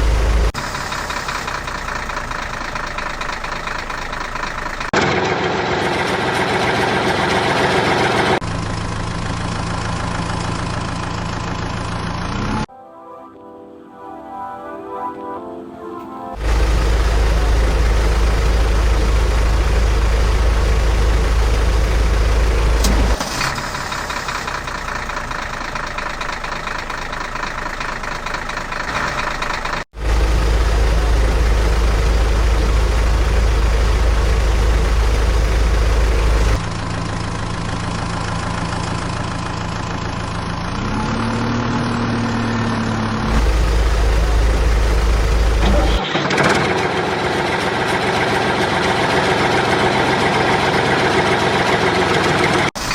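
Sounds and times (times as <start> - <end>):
heavy vehicle engine rumbling: 0.0 - 12.7, 16.2 - 52.9.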